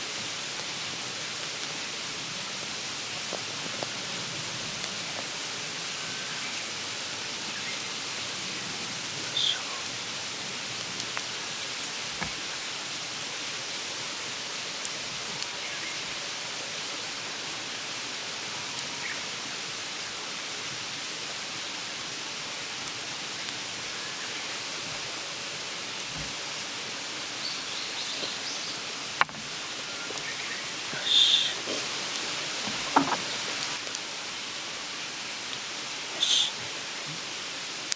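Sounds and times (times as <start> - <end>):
stream babbling: 21.8 - 37.9.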